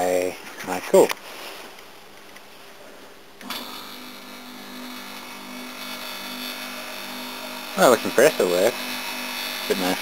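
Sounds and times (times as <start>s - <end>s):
air conditioner compressor humming: 2.8s - 10.0s.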